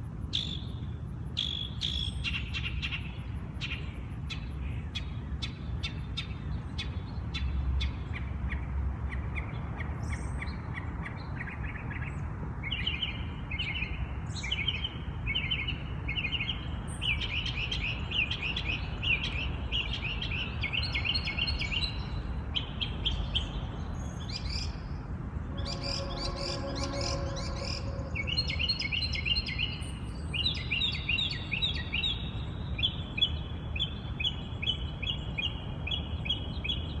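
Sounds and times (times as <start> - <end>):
songbird singing rapid high phrases: 0.3 - 37.0
low rumble: 25.3 - 29.5
lower bird call: 25.4 - 29.9.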